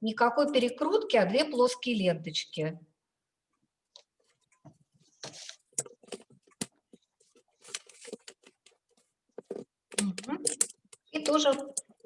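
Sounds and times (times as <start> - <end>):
ribbon rustling: 4.0 - 9.8.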